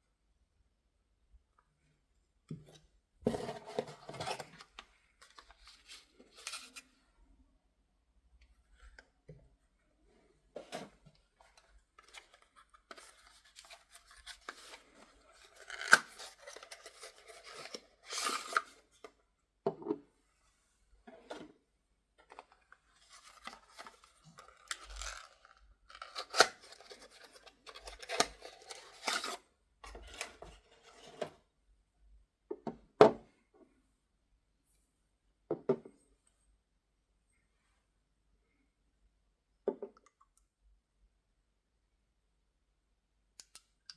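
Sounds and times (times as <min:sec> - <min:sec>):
paper rustling and crinkling: 0:03.3 - 0:06.9, 0:11.4 - 0:18.8, 0:22.3 - 0:31.1.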